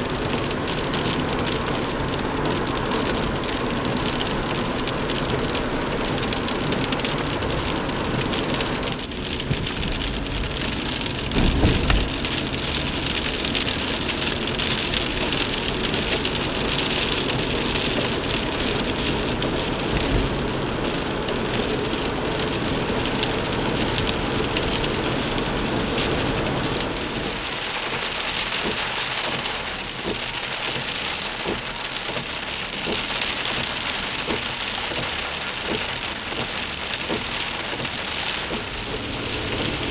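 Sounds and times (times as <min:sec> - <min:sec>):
engine and road rumble: 0:00.0 - 0:39.9
rain falling on a vehicle: 0:00.0 - 0:39.9
low thud: 0:11.2 - 0:12.3.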